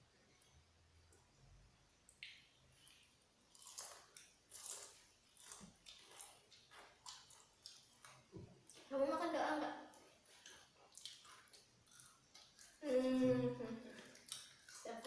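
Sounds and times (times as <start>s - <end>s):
person chewing fried chicken: 2.2s - 8.9s, 9.9s - 12.9s, 13.8s - 15.0s.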